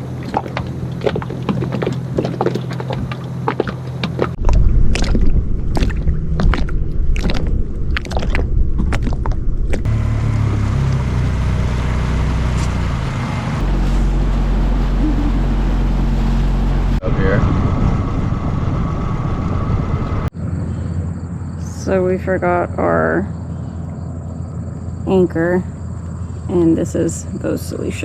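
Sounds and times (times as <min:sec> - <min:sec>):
knocks and splashes: 0:00.0 - 0:09.9
boat motor humming: 0:00.0 - 0:20.3.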